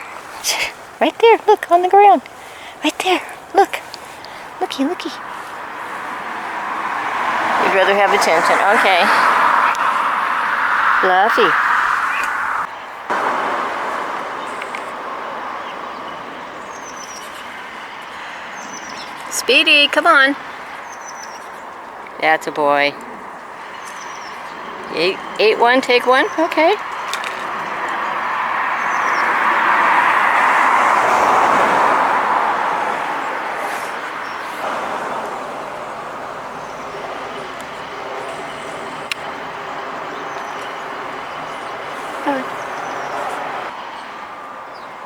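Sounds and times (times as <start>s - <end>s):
passing vehicle road noise: 2.1s - 45.0s.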